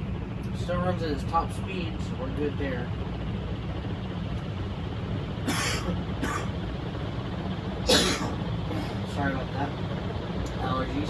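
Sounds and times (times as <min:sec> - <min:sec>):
ceiling fan humming: 0:00.0 - 0:11.0.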